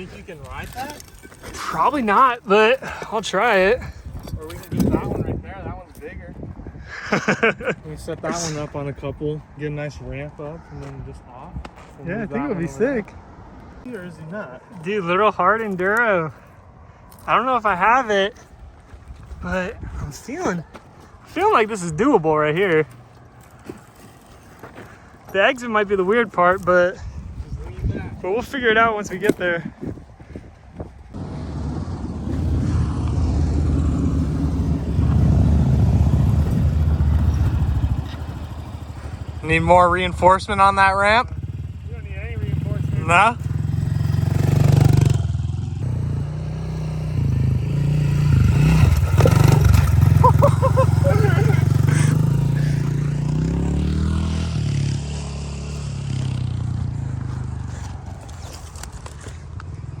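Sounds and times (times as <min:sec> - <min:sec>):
small motorbike engine revving: 0:42.6 - 0:58.9.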